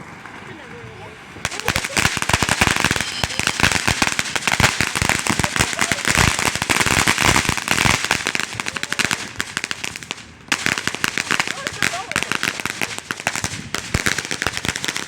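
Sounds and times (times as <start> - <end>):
firecrackers cracking: 1.4 - 15.0.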